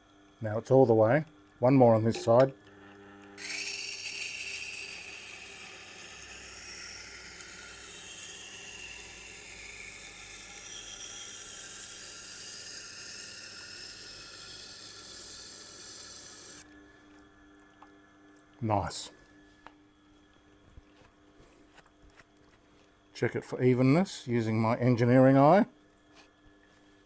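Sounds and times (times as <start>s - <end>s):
knife grinding on stone wheel: 3.4s - 16.6s.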